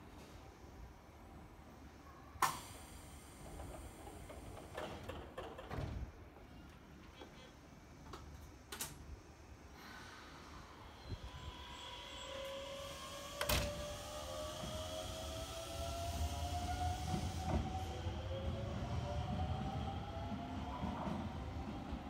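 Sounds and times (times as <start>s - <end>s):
train doors sliding shut: 2.4s - 6.9s, 11.1s - 19.1s.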